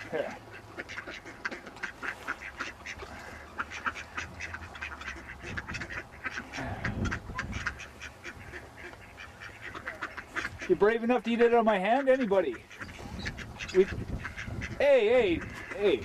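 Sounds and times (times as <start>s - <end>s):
ducks quacking: 0.0s - 16.0s.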